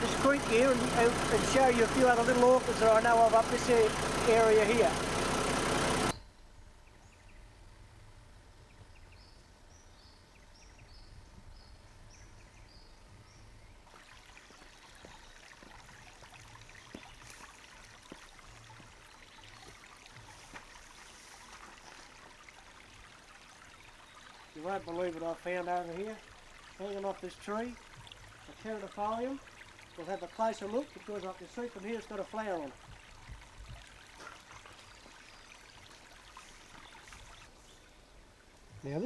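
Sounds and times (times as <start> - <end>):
creek trickling: 0.0 - 6.2, 13.8 - 39.0
rush of running water: 0.0 - 6.2, 13.9 - 37.6
vehicle engine running: 0.0 - 6.2.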